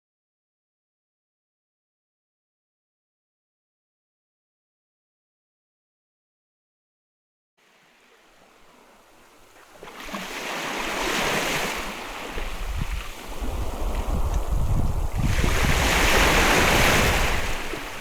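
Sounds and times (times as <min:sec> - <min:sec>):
sea waves washing onto beach: 0:07.6 - 0:18.0
wind rumble on microphone: 0:11.8 - 0:18.0.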